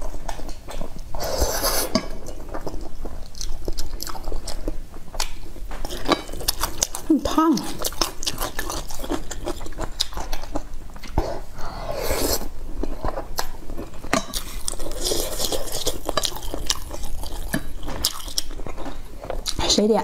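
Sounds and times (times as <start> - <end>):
close chewing: 0.0 - 20.0.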